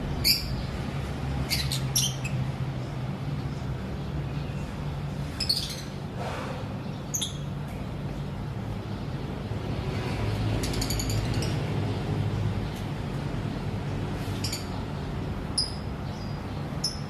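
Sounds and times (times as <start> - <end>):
lovebirds chirping and squawking: 0.0 - 7.8, 10.1 - 12.9, 13.9 - 17.0.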